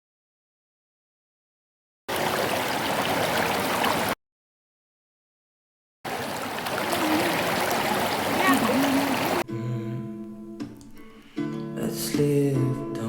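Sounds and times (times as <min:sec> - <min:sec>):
flowing stream water: 0:02.1 - 0:04.2, 0:06.1 - 0:09.4.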